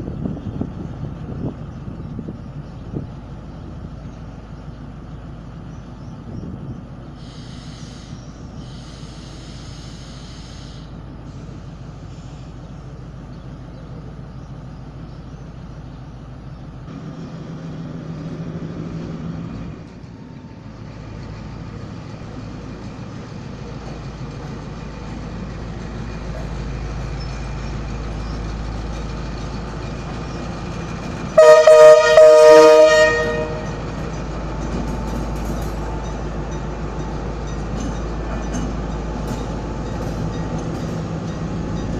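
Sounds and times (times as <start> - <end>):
diesel locomotive engine rumble: 0.0 - 41.9
train horn chord: 31.4 - 33.9.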